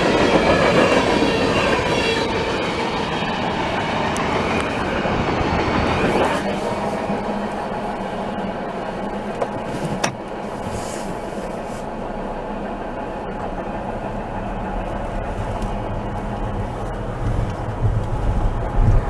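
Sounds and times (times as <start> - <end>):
freight train wheels on rail: 0.0 - 19.0.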